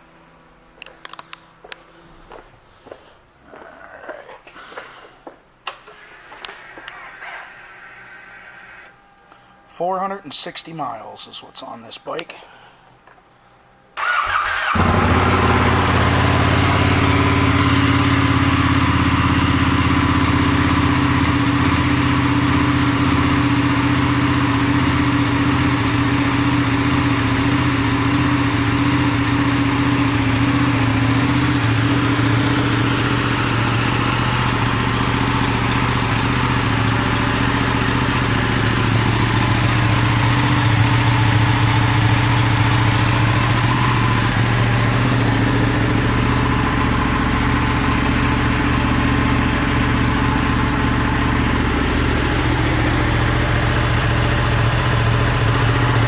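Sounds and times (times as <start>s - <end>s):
motorcycle starter turning: 14.0s - 16.4s
motorcycle engine idling: 14.0s - 56.0s.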